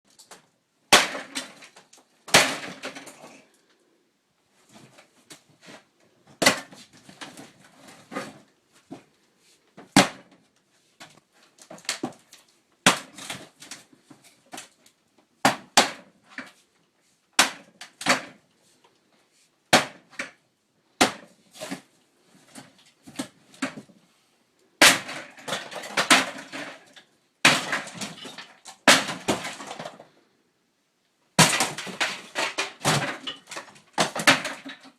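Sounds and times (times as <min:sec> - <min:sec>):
heavy blows smashing sink: 0:15.5 - 0:15.7.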